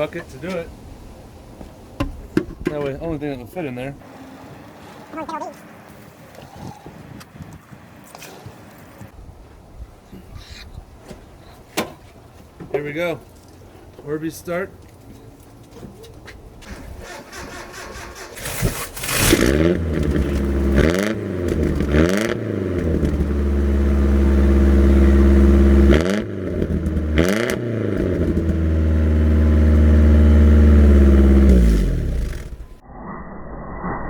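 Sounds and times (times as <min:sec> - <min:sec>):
pickup truck engine revving: 0:17.1 - 0:32.8.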